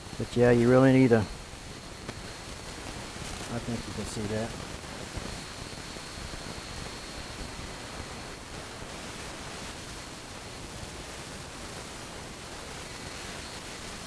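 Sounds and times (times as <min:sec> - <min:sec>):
background hiss: 0:00.0 - 0:14.0.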